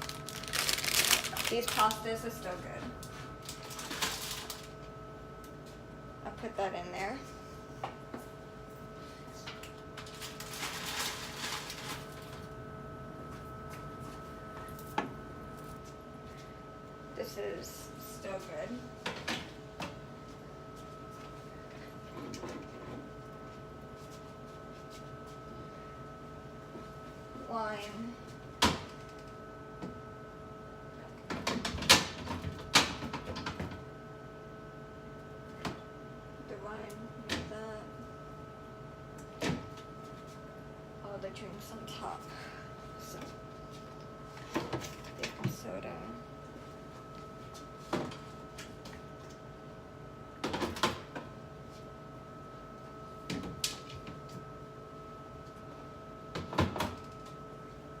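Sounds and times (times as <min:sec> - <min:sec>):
steady refrigerator hum: 0:00.0 - 0:58.0
items clattering on fridge shelves: 0:02.8 - 0:04.8, 0:09.5 - 0:12.5.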